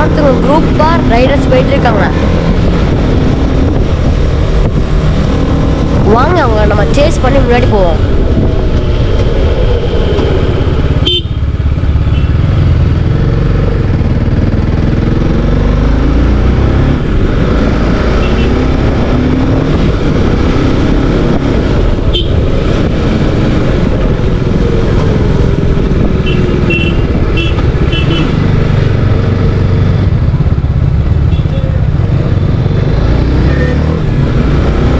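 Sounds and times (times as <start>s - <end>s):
wind on microphone: 0.0s - 11.0s, 16.2s - 31.2s
motorcycle engine revving: 0.0s - 34.9s.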